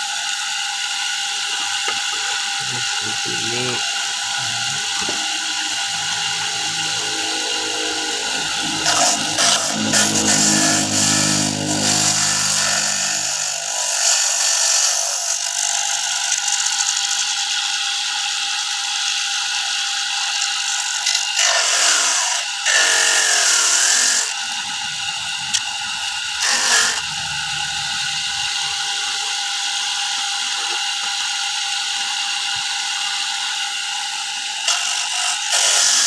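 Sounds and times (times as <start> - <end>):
grating machine whining: 0.0 - 36.0
coconut rasping against grater: 1.3 - 17.7, 20.1 - 29.0, 34.6 - 36.0.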